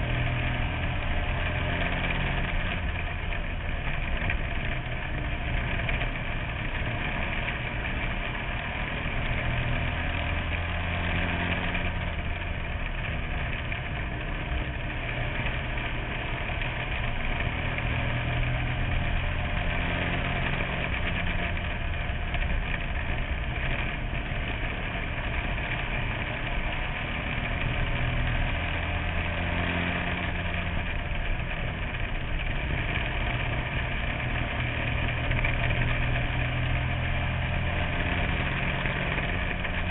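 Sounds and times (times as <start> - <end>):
race car engine under load: 0.0 - 39.9.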